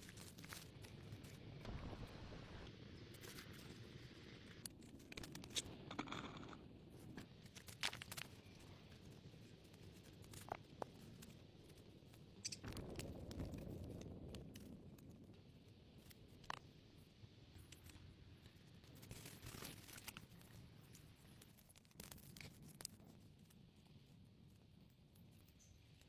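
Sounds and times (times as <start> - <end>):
scraping and crunching: 0.0 - 1.8.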